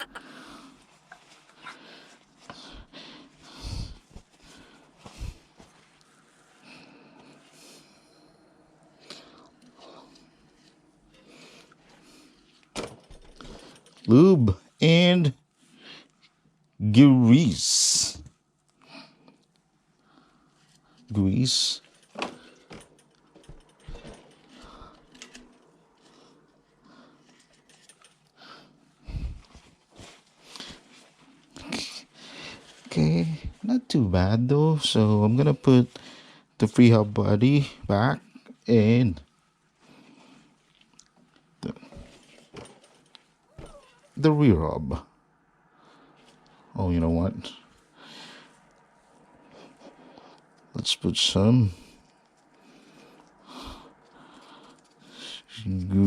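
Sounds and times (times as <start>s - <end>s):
clicks and knocks of bicycle parts: 12.7s - 14.1s, 21.9s - 25.7s, 27.3s - 28.3s.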